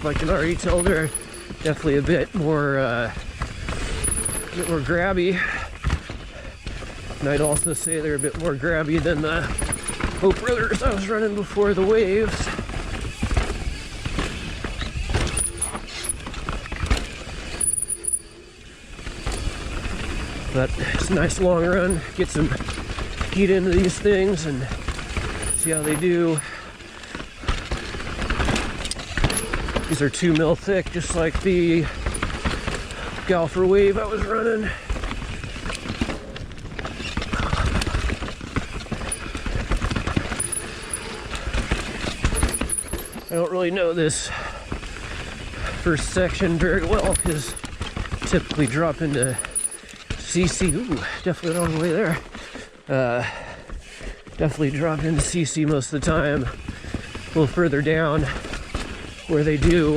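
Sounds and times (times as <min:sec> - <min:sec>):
mountain bike rattling over rough trail: 0:00.0 - 0:59.9
tyres rumbling over dirt: 0:00.0 - 0:59.9.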